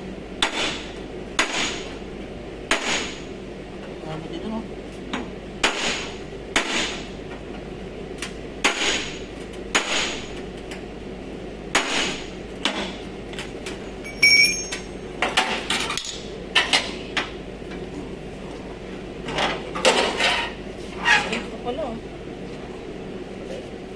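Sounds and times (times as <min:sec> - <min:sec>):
hammer striking metal: 0:14.0 - 0:15.0.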